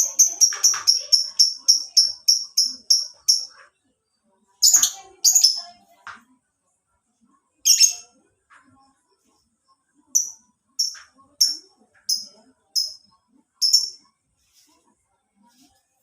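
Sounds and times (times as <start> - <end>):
bird rapid high chirps: 0.0 - 3.6, 13.6 - 14.0.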